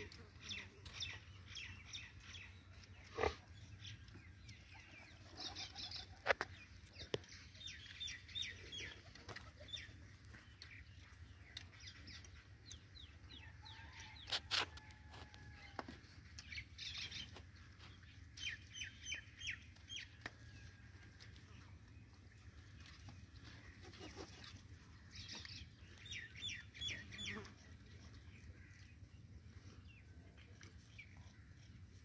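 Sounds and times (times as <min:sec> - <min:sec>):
birds chirping: 0:16.4 - 0:32.0.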